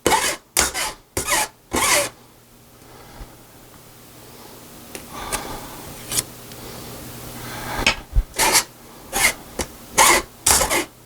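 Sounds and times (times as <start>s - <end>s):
potato rasping through mesh sifter: 0.0s - 2.2s, 8.3s - 11.0s.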